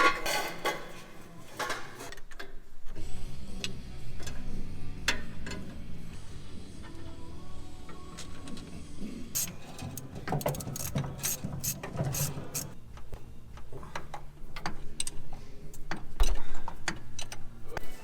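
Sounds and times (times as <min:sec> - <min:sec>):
hand tools clanking on metal: 0:00.0 - 0:02.1
ratchet clicks: 0:09.4 - 0:12.8.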